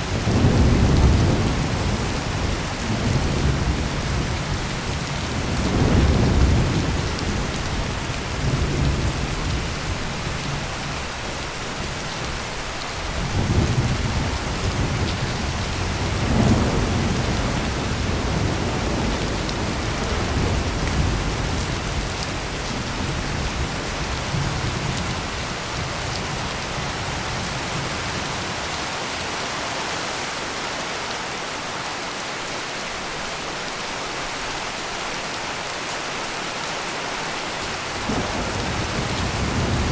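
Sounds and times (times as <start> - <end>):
thunder rumbling: 0.0 - 10.5, 13.1 - 28.5, 38.0 - 39.9
heavy rain pouring: 0.0 - 39.9.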